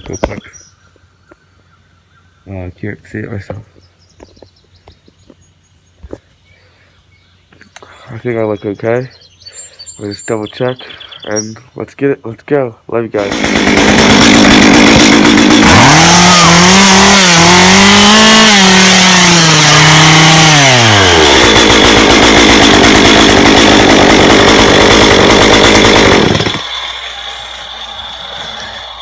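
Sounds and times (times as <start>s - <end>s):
chainsaw engine revving: 13.2s - 29.0s.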